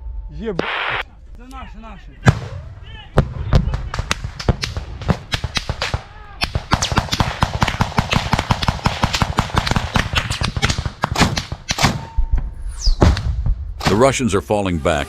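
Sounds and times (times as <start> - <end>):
rapid small-arms gunfire: 3.7 - 12.1.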